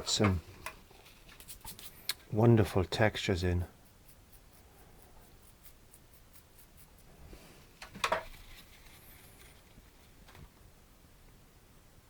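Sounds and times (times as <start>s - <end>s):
brush scrape: 0.9s - 2.2s, 3.7s - 10.2s
paintbrush strokes on canvas: 3.6s - 10.2s.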